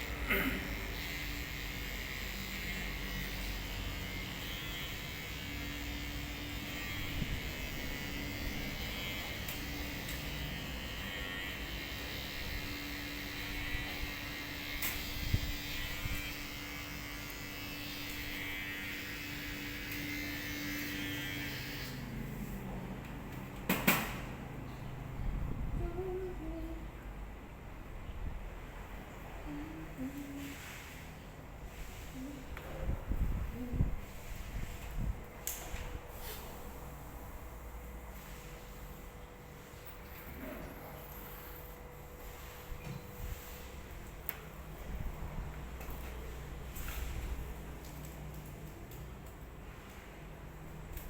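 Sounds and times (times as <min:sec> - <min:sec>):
electric hair clippers buzzing: 0:00.0 - 0:22.3.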